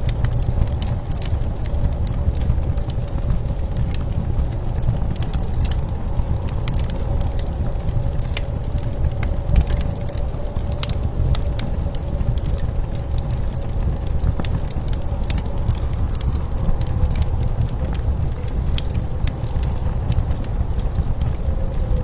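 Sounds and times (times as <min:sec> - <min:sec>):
blizzard wind rumble: 0:00.0 - 0:22.0
wood fire crackling: 0:00.0 - 0:22.0.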